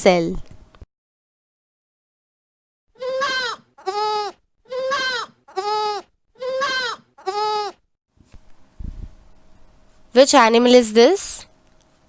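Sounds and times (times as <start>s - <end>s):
goat bleating: 3.0s - 7.8s.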